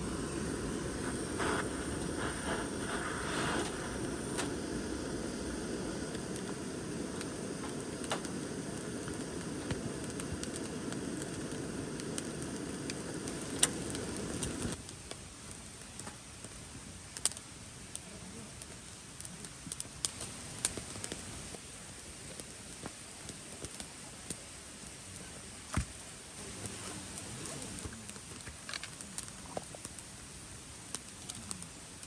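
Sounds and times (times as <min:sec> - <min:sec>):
steady low rush: 0:00.0 - 0:14.8
fire crackling and popping: 0:00.0 - 0:32.0.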